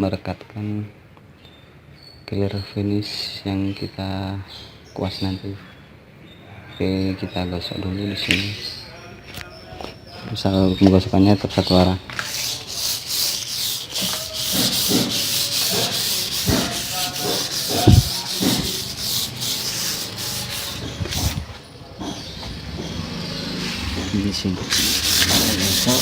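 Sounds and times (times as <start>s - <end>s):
sandpaper rubbing on wood: 11.6s - 21.6s, 23.6s - 26.0s
dull thump: 17.7s - 18.7s.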